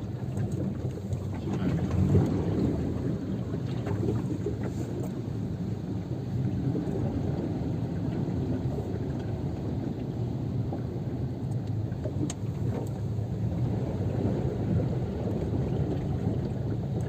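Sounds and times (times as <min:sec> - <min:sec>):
car driving through floodwater: 0:00.0 - 0:17.0
light ticks: 0:10.0 - 0:13.0.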